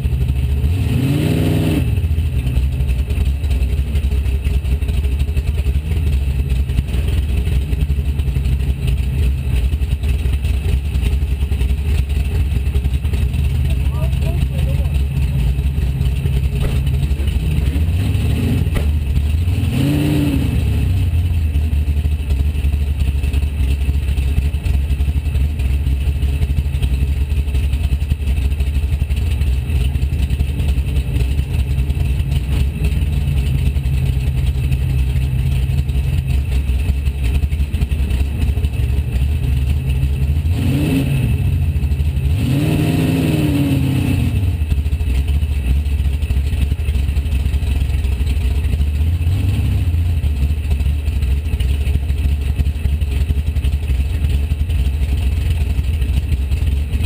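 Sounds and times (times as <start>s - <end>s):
race car engine idling and revving: 0.0s - 57.0s.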